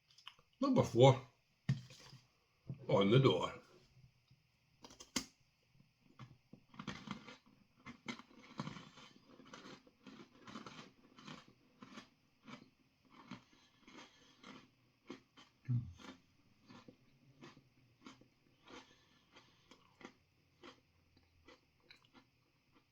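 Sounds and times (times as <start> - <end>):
crunching and chewing: 6.0 - 22.9.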